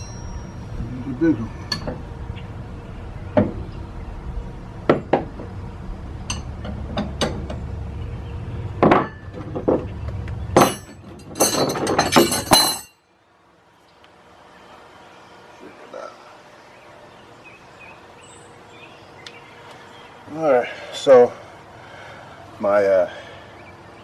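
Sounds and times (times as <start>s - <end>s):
metal wrenches clinking: 10.6s - 13.0s.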